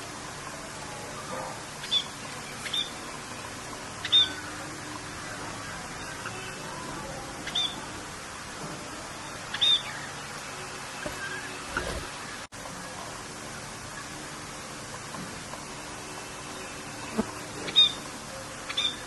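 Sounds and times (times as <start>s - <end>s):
rain hiss: 0.0s - 19.0s
bird chirps: 1.8s - 5.0s, 7.4s - 7.9s, 9.5s - 10.4s, 16.5s - 19.0s.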